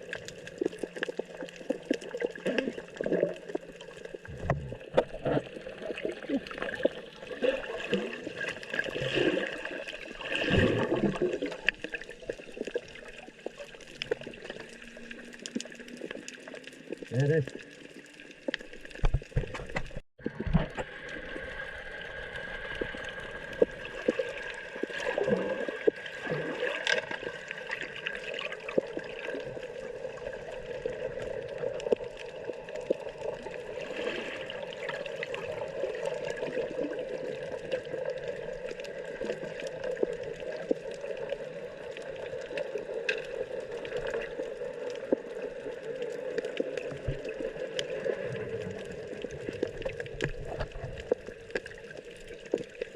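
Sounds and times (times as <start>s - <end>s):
water sloshing and trickling: 0.0s - 52.9s.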